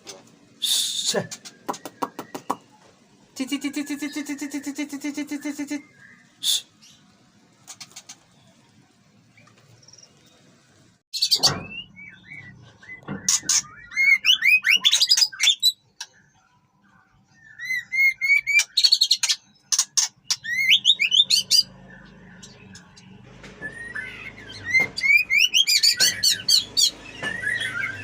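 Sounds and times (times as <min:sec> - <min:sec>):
songbird whistling and chattering: 0:00.6 - 0:02.8, 0:11.2 - 0:16.4, 0:17.3 - 0:23.0, 0:23.6 - 0:28.0.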